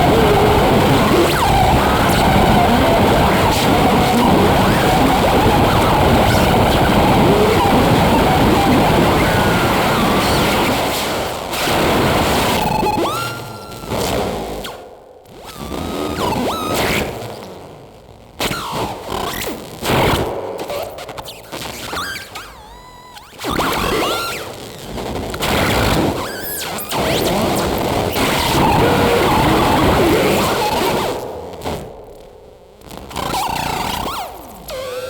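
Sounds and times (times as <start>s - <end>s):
electroacoustic noise music: 0.0s - 16.0s, 26.9s - 35.0s.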